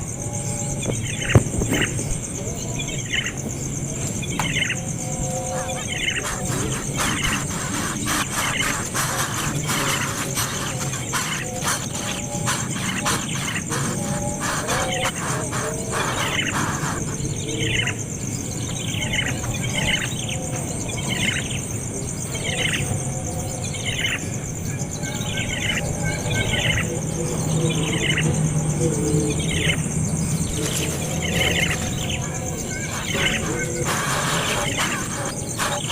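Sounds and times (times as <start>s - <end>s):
baby bird calling: 4.3s - 18.0s, 29.1s - 35.9s.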